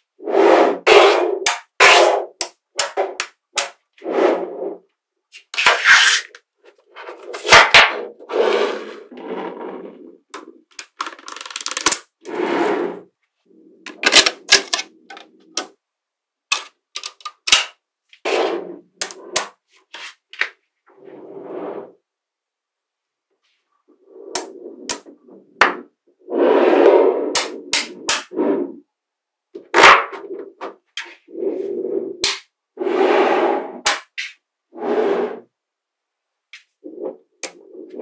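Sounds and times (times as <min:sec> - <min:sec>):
balls rattling and clattering: 0:10.2 - 0:13.1, 0:13.9 - 0:15.7, 0:16.5 - 0:17.8
magnetic balls clicking together: 0:10.3 - 0:12.2, 0:16.5 - 0:17.7.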